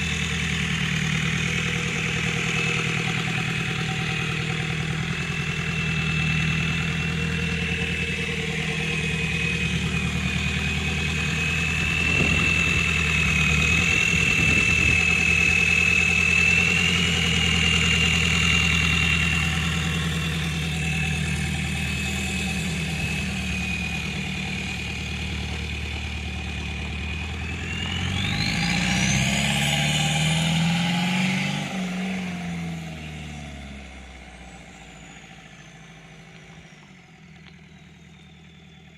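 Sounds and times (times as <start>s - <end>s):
diesel engine idling and revving: 0.0s - 38.9s
high turbo whistle: 27.2s - 32.3s.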